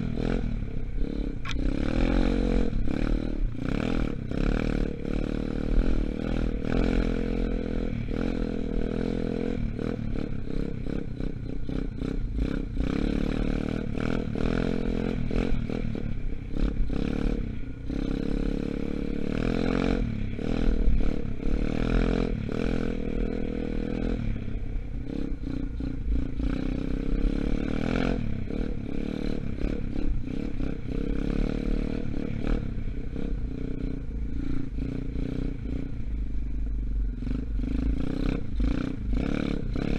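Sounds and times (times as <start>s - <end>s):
dirt bike engine revving: 0.0s - 36.1s, 37.1s - 39.9s.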